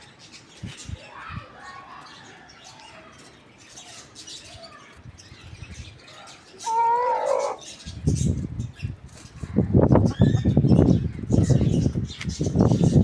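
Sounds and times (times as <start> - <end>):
small birds chirping: 0.0 - 13.0
chicken calling: 6.6 - 7.8.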